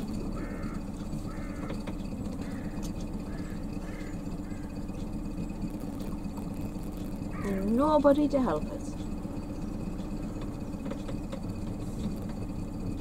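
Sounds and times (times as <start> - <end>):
bird calling: 0.0 - 5.5, 6.6 - 7.9
boat engine low hum: 0.0 - 13.0.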